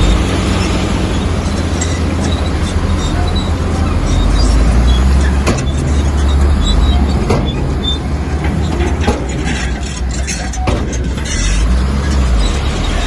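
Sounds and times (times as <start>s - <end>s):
heavy diesel engine rumbling: 0.0s - 13.0s
sharp metallic clanks: 0.0s - 13.0s.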